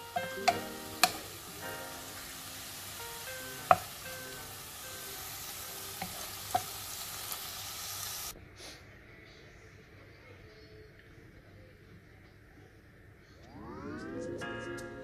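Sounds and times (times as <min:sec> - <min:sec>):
vegetables sizzling in a pan: 0:00.0 - 0:08.4
wooden spatula knocking on pan: 0:00.2 - 0:01.3, 0:03.6 - 0:04.1, 0:05.9 - 0:06.8.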